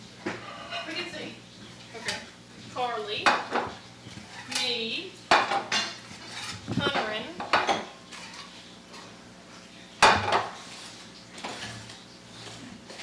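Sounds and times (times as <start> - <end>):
plates clattering on table: 5.3 - 7.9, 10.0 - 10.6.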